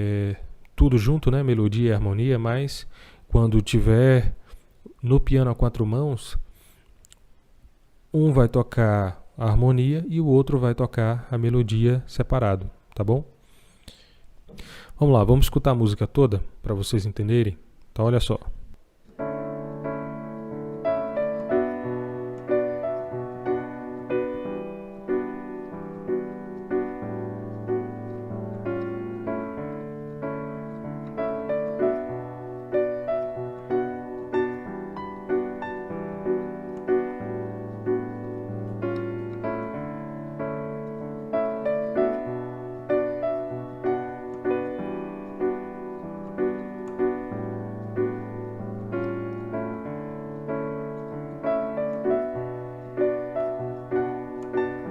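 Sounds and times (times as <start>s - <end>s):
piano playing bossa nova: 19.1s - 54.9s.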